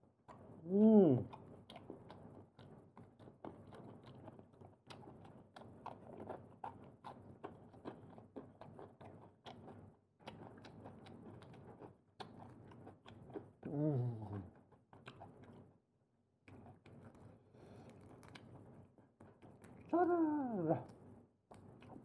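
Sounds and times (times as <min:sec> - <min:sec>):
person chewing wetly: 0:00.2 - 0:15.7, 0:16.4 - 0:22.0
person humming mm: 0:00.6 - 0:01.3, 0:13.7 - 0:14.5, 0:19.9 - 0:20.8.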